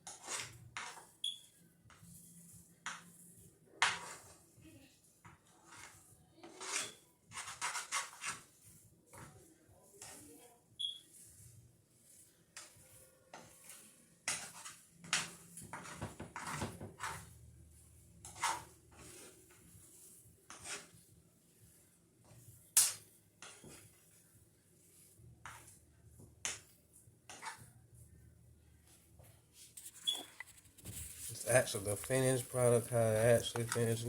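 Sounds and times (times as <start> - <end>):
utensil scraping cookware: 0.0 - 1.4, 3.8 - 4.4, 5.4 - 9.3, 9.9 - 17.4, 18.2 - 21.0, 22.2 - 25.8, 27.3 - 27.7, 29.7 - 34.0.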